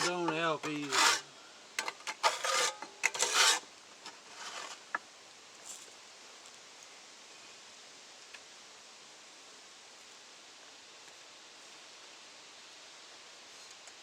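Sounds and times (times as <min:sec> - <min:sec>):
rough scraping in kiln firebox: 0:00.0 - 0:05.0.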